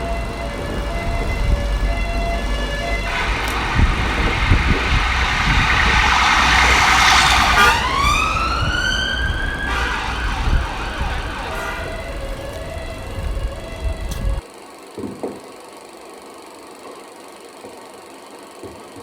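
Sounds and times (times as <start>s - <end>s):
loud rushing noise: 0.0s - 14.4s
wailing tone rising in pitch: 0.0s - 14.4s.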